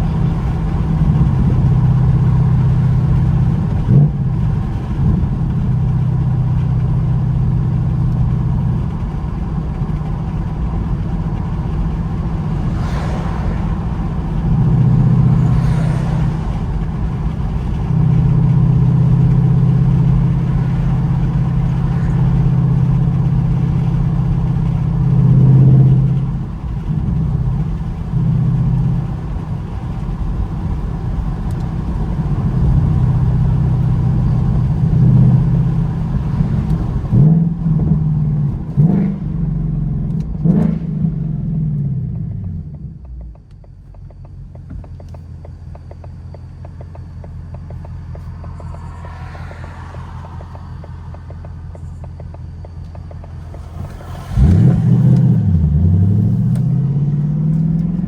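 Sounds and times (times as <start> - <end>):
car exhaust drone: 0.0 - 58.0.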